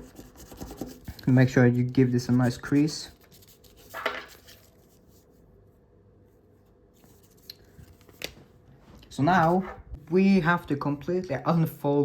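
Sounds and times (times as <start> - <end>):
paper rasping rub: 0.0 - 1.5, 2.1 - 5.0
paper rustling: 2.4 - 5.4.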